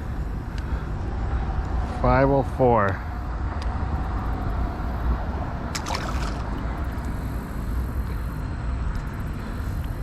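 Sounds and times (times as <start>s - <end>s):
wind rumbling on microphone: 0.0s - 10.0s
river water rushing: 5.8s - 6.7s.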